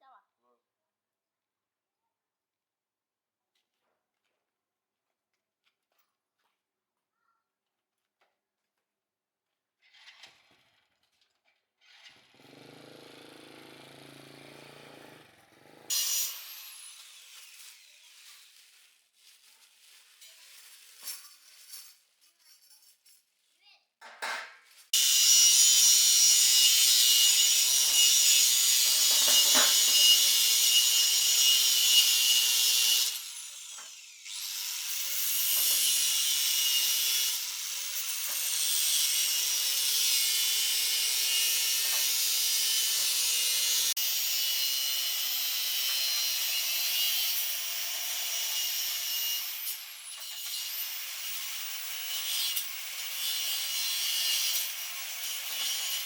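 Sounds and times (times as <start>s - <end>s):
power tool grinding: 11.8s - 18.8s, 25.0s - 56.0s.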